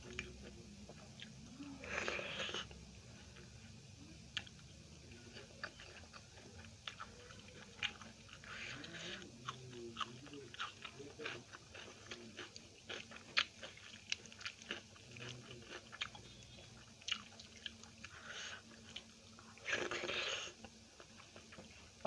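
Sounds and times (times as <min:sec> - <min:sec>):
person chewing food: 0:00.0 - 0:03.7, 0:04.3 - 0:22.0.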